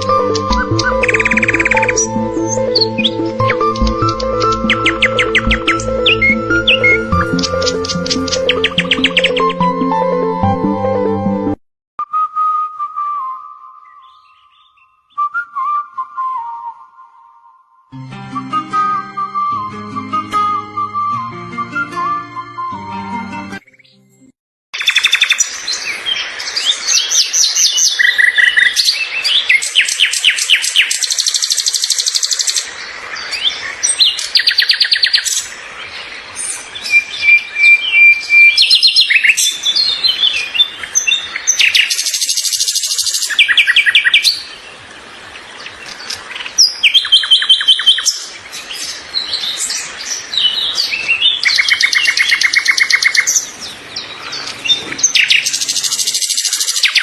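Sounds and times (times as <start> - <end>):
songbirds singing: 0.0 - 9.8, 13.8 - 15.3, 24.8 - 57.0.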